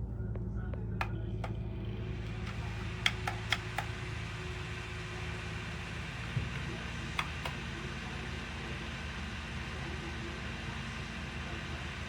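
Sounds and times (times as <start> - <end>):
space heater fan hum: 0.0 - 12.0
light clicks: 2.2 - 4.5.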